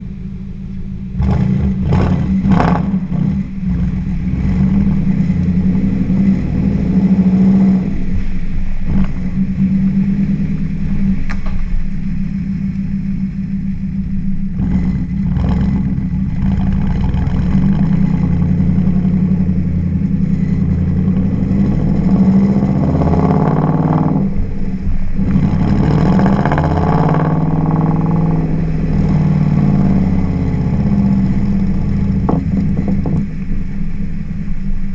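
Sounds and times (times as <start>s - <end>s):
car engine revving: 0.0s - 34.9s.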